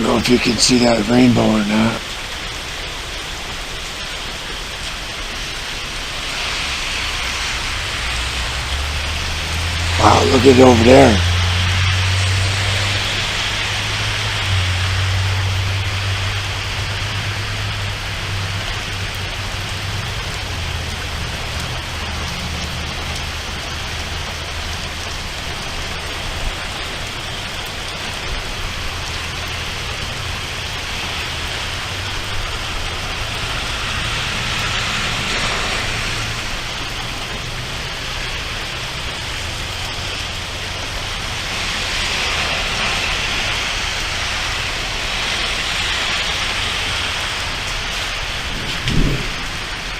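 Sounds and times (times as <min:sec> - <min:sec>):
rain falling: 0:00.0 - 0:49.9
low rumble: 0:47.4 - 0:49.9.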